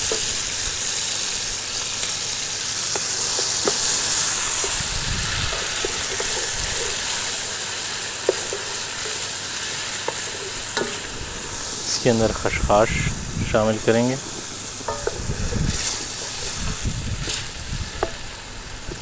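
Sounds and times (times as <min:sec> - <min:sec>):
food sizzling in hot oil: 0:00.0 - 0:19.0
wooden spoon stirring: 0:05.5 - 0:09.4.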